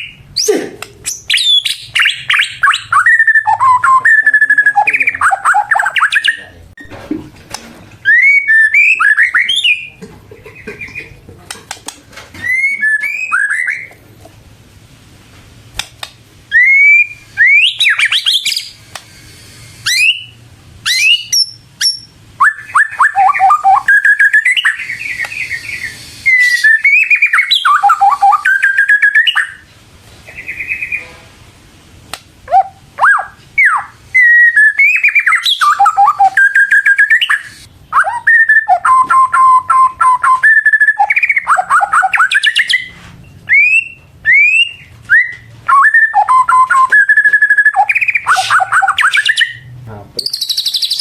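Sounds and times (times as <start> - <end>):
bird singing whistled notes: 1.1 - 6.5, 8.0 - 10.0, 12.4 - 13.9, 16.5 - 18.8, 19.8 - 29.6, 33.0 - 51.0.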